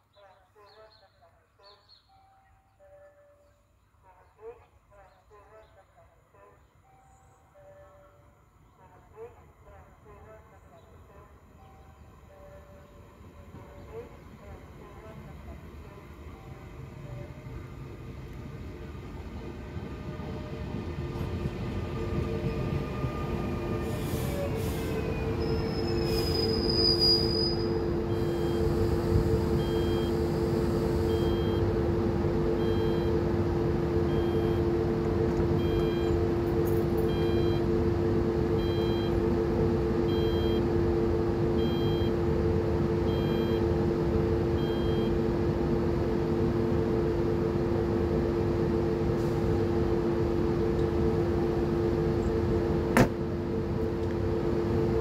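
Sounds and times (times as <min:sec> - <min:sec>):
train rolling past: 0:11.4 - 0:40.2.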